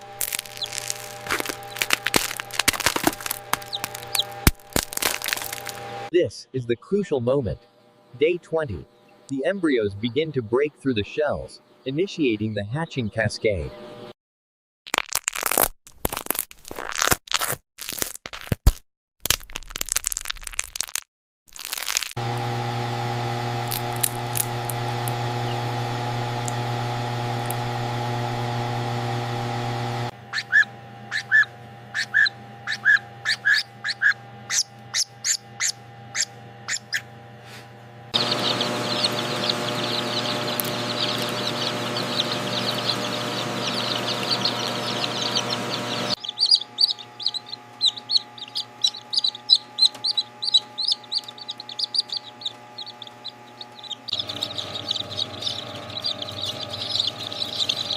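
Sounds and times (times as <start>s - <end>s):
fan noise: 0.0s - 6.1s, 22.2s - 57.9s
machine hum: 0.0s - 6.1s, 22.2s - 57.9s
chicks peeping: 0.2s - 5.4s, 23.8s - 37.1s, 38.2s - 57.9s.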